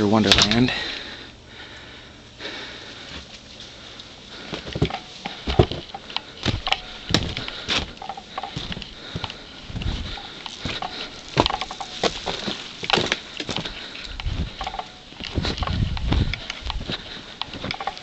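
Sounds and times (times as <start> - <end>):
footsteps crunching through snow: 4.4 - 18.0.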